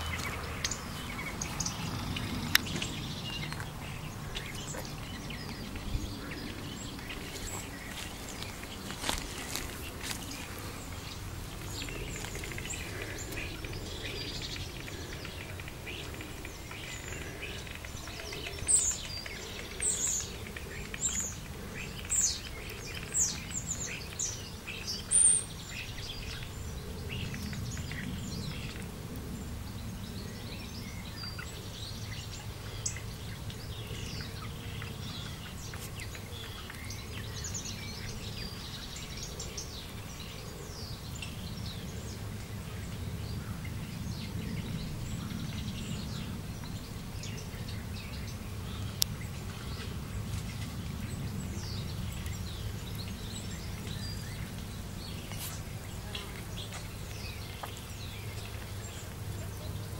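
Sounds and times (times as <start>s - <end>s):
faint clicks: 11.6s - 24.3s.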